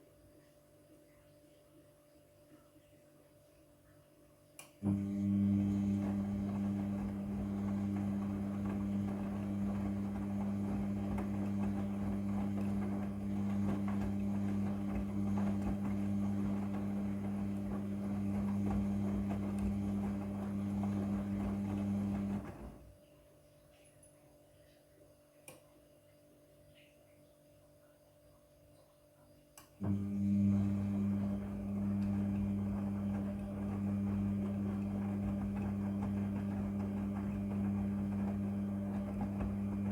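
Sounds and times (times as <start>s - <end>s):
washing machine running: 4.8s - 23.0s, 29.8s - 39.9s.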